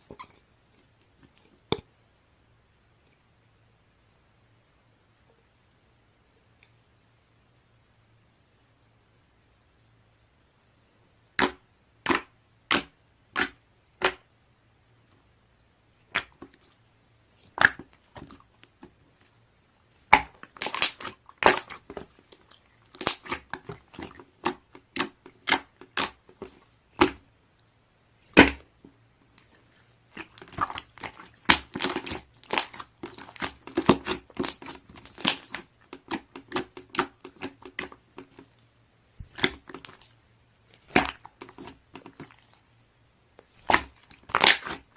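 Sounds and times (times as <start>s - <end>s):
slime squished by hand popping: 11.4s - 14.2s, 20.1s - 22.0s, 28.3s - 28.7s, 30.2s - 38.0s, 39.2s - 40.0s, 40.8s - 42.4s, 43.6s - 44.9s.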